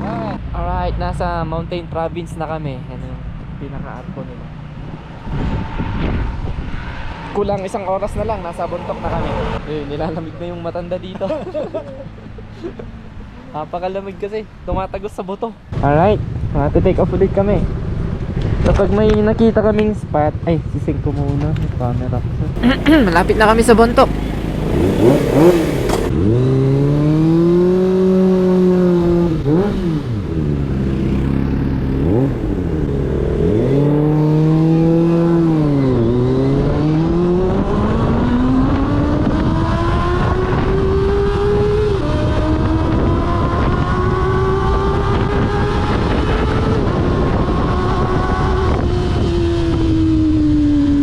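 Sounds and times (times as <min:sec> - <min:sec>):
wind rushing: 0:04.8 - 0:09.6
motorcycle engine revving: 0:22.5 - 0:51.0.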